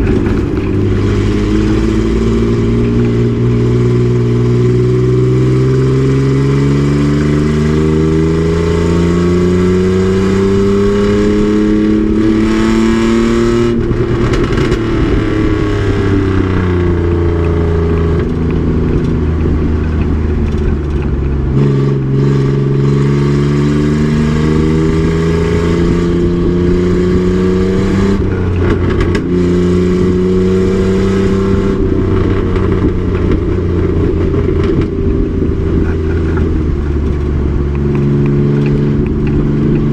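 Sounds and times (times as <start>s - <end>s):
truck engine accelerating: 0.0s - 39.9s.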